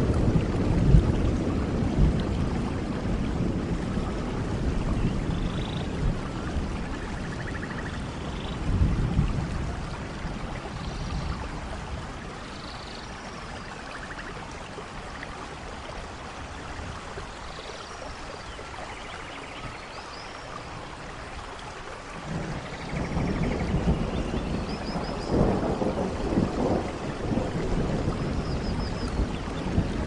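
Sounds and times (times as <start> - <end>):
thunder rumbling: 0.0 - 12.5, 22.2 - 30.0
steady rainfall: 0.0 - 30.0.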